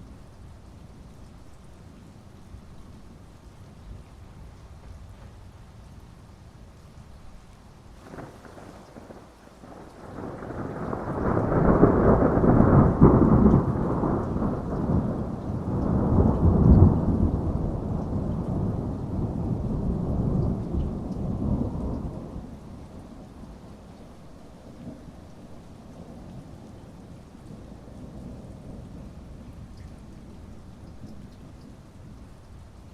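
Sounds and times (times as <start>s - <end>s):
steady rain: 0.0s - 32.9s
rolling thunder: 8.0s - 23.8s.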